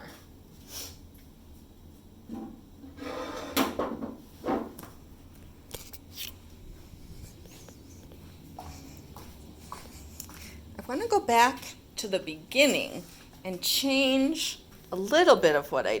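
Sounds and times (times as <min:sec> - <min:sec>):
objects knocking and scraping: 0:02.3 - 0:05.0.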